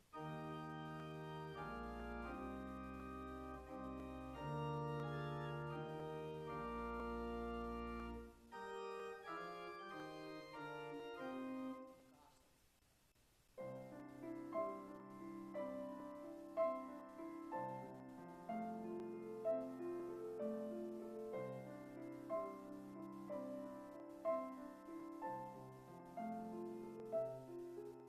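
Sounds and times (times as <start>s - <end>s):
organ playing chords: 0.0s - 12.0s.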